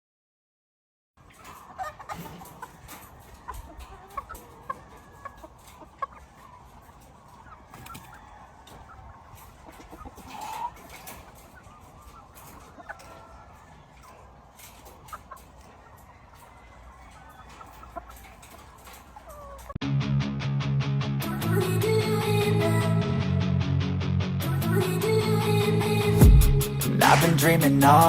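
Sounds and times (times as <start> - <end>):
chickens clucking: 1.2 - 19.8, 21.2 - 23.0
chicken call: 1.4 - 14.4.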